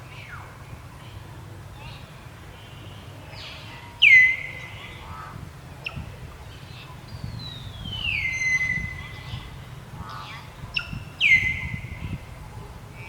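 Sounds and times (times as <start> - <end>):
high whistled animal calls: 8.0 - 9.3.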